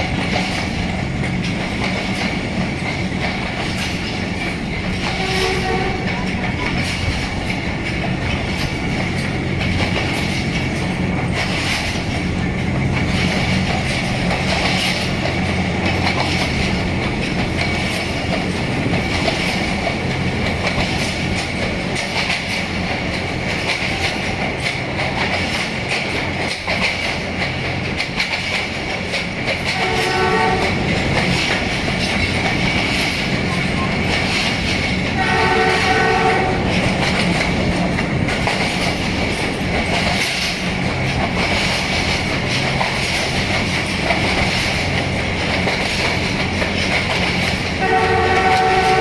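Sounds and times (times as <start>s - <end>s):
wheels clicking over rail joints: 0.0s - 49.0s
locomotive horn blast: 5.1s - 6.3s, 29.7s - 30.9s, 35.2s - 36.7s, 47.8s - 49.0s.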